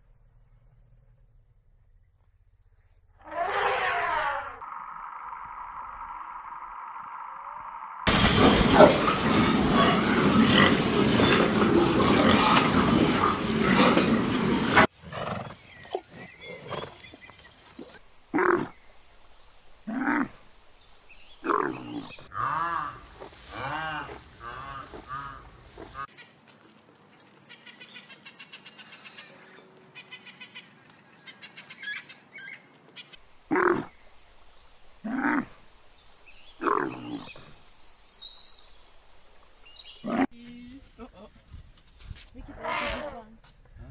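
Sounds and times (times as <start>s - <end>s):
animal calls: 8.1s - 14.9s, 21.4s - 26.3s.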